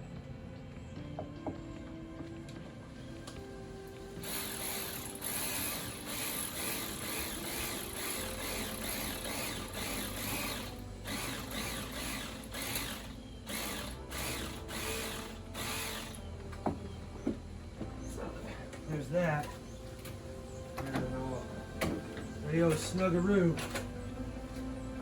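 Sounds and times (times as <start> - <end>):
ratchet wrench clicking: 4.2 - 16.2.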